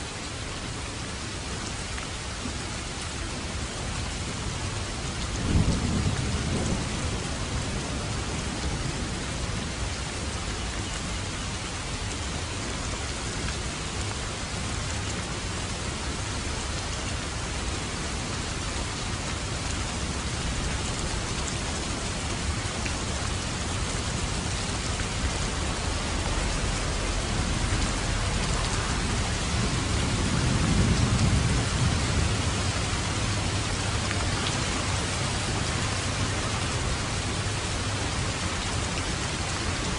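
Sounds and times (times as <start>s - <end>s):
steady rain falling: 0.0s - 39.9s
distant thunder rumbling: 5.2s - 9.8s, 23.3s - 37.8s.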